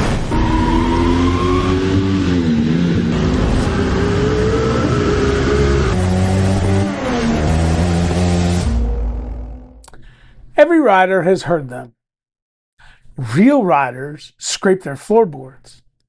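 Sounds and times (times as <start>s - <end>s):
motorcycle engine revving: 0.3s - 9.8s.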